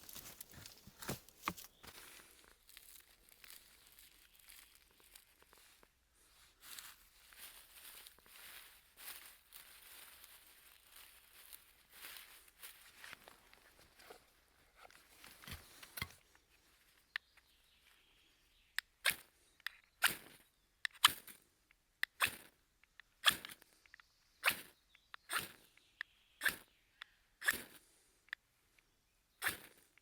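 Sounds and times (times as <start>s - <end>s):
faint rustling: 0.0s - 16.9s.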